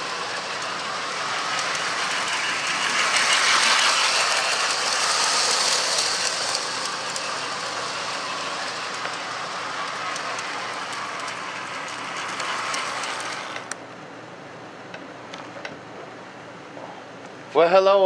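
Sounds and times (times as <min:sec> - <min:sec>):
toy train wheels clattering on rails: 0:00.0 - 0:13.8.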